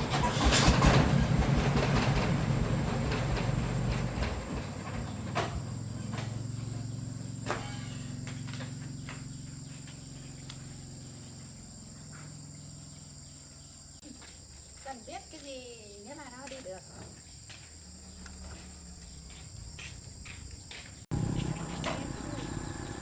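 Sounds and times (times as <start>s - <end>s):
low mechanical hum: 21.1s - 23.0s.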